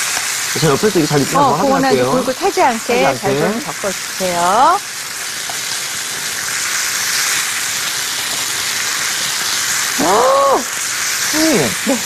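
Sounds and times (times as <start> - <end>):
food sizzling in frying pans: 0.0 - 12.0
short vocal sound: 3.0 - 3.8.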